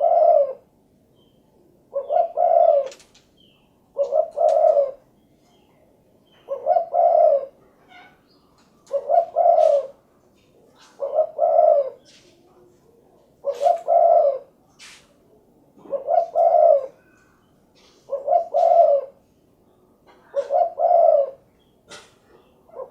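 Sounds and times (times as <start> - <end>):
dove cooing: 0.0 - 0.8, 1.9 - 3.2, 3.9 - 5.1, 6.4 - 8.2, 8.8 - 12.2, 13.4 - 14.6, 15.8 - 19.3, 20.0 - 22.9.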